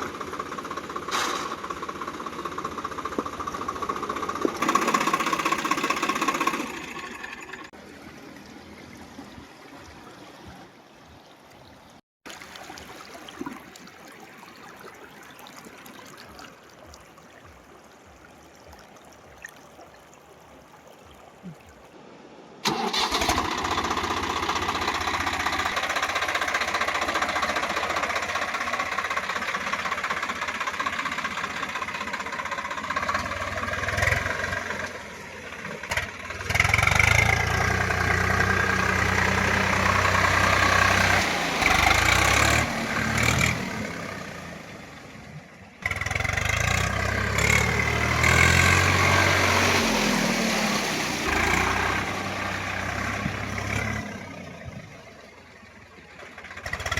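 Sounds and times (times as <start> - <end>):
diesel tractor engine running: 0.0 - 7.8, 22.6 - 56.9.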